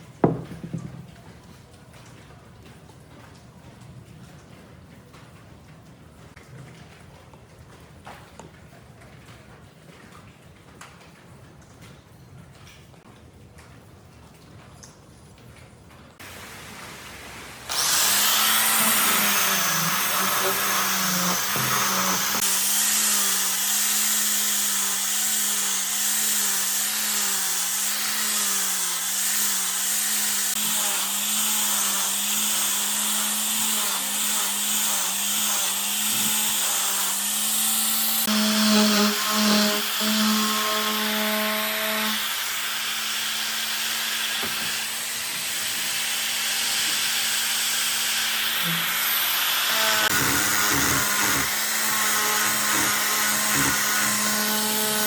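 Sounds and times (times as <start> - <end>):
power tool grinding wood: 16.2 - 55.0.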